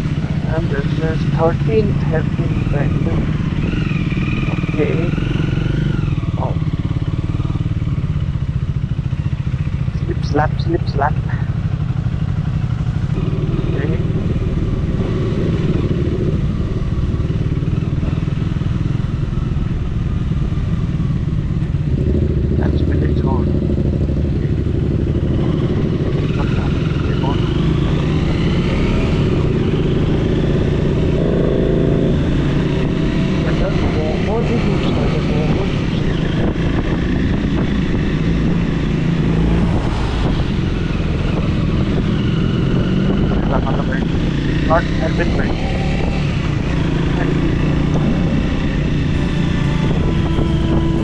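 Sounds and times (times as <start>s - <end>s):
motorcycle engine running: 0.0s - 51.0s
wind buffeting microphone: 35.6s - 51.0s.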